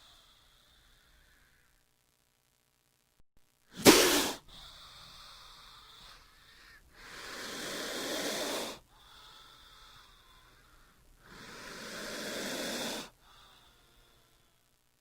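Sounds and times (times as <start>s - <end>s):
snake hissing: 3.8s - 4.6s, 7.0s - 8.8s, 11.2s - 13.7s.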